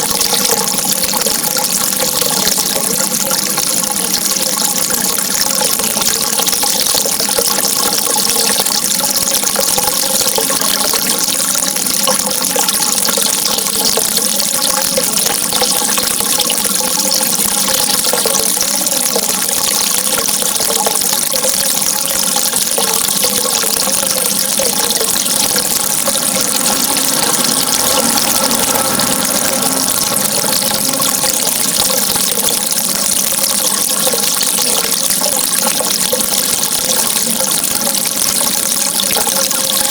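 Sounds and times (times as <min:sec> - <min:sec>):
running water gurgling: 0:00.0 - 0:39.9.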